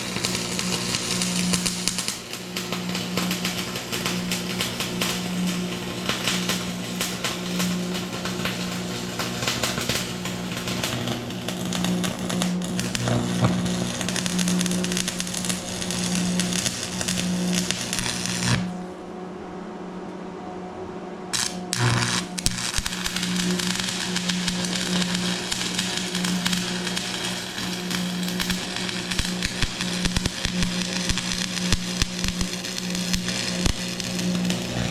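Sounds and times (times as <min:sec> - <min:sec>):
welding arc crackling: 0:00.0 - 0:18.9, 0:21.3 - 0:34.9
low hum: 0:08.0 - 0:34.9.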